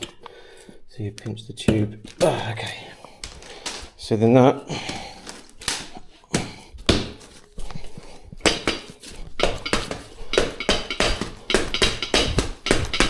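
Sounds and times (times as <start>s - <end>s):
metal tyre levers clinking on rim: 8.4s - 13.0s.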